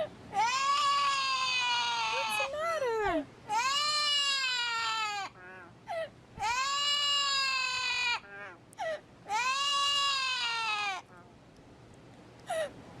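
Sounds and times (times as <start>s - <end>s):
parrot wailing: 0.4s - 2.6s, 3.5s - 5.7s, 6.4s - 8.6s, 9.3s - 11.1s.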